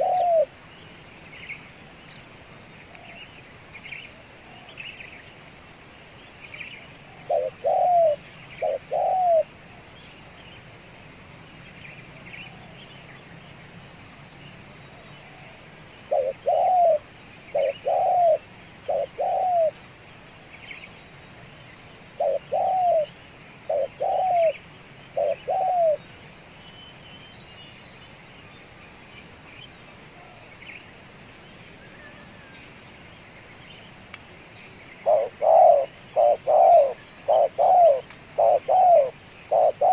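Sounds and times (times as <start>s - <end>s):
dove cooing: 0.0s - 0.5s, 7.1s - 9.5s, 15.2s - 19.8s, 22.2s - 26.0s, 35.0s - 39.9s
small birds chirping: 6.2s - 13.5s, 14.4s - 31.0s, 31.8s - 39.9s.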